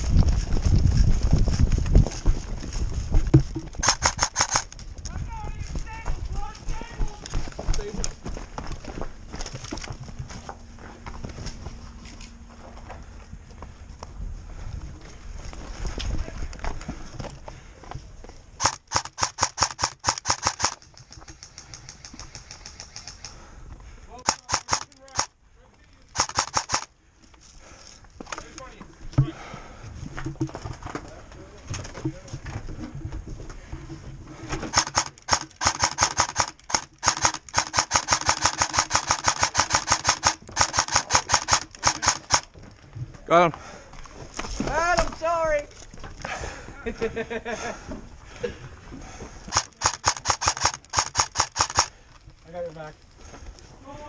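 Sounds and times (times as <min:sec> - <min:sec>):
airsoft gun shots: 0:03.8 - 0:04.6, 0:18.6 - 0:20.8, 0:24.3 - 0:25.3, 0:26.2 - 0:26.9, 0:34.6 - 0:42.4, 0:49.5 - 0:51.9.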